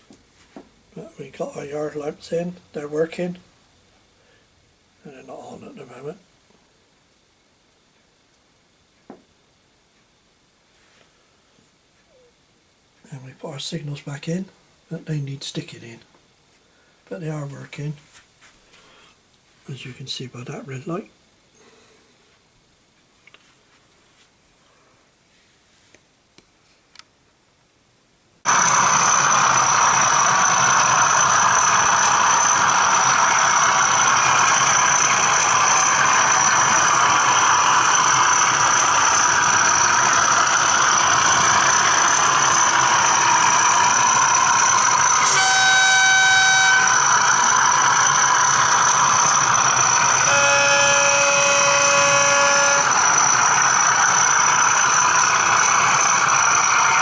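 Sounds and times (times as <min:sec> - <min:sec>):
high steady whine: 0:00.9 - 0:06.8, 0:13.0 - 0:16.2, 0:17.1 - 0:22.1, 0:28.5 - 0:57.0
model diesel engine sound: 0:01.0 - 0:03.4, 0:28.5 - 0:57.0
locomotive horn blasts: 0:43.8 - 0:55.8.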